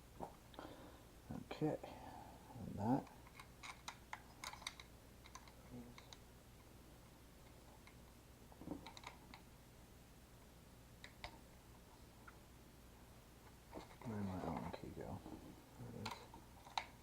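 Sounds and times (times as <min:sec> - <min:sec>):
low steady hum: 0:00.0 - 0:17.0
small parts clicking: 0:03.2 - 0:06.2.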